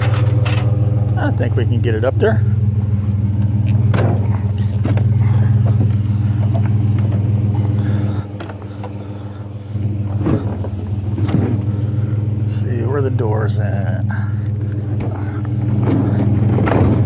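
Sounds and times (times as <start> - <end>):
short knocks and clanks: 0.0 - 1.2, 3.3 - 9.1, 9.8 - 12.1, 14.4 - 17.0
truck engine idling: 0.0 - 17.0.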